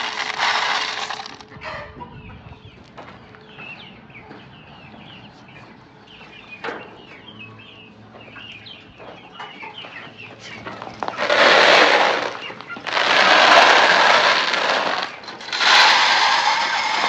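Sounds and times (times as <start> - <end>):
chickens calling: 0.0 - 17.0.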